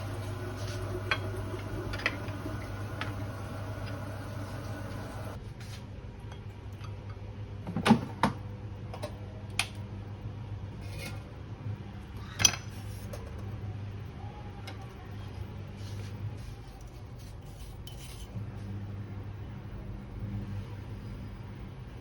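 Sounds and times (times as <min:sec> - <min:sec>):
steady low hum: 0:00.0 - 0:05.5.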